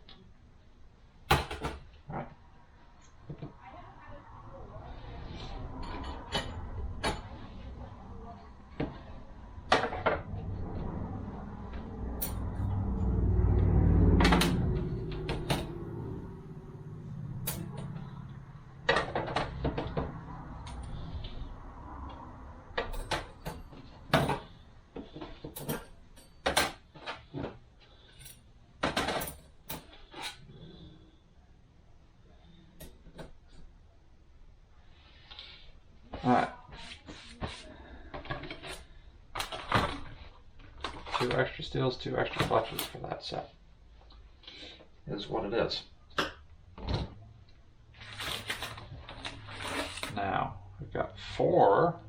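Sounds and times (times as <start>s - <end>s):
low rumble: 4.8s - 23.1s.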